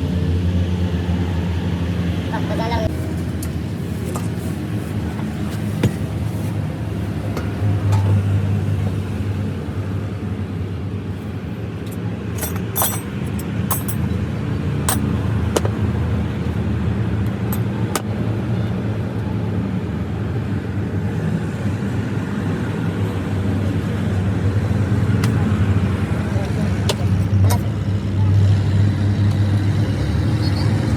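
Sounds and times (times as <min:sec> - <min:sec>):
sharp metallic clinks: 0:12.4 - 0:14.1.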